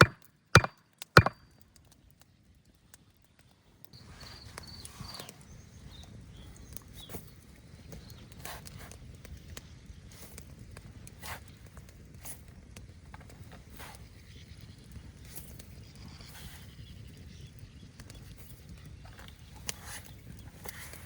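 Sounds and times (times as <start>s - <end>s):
sharp knocks and clicks: 0.0s - 1.4s.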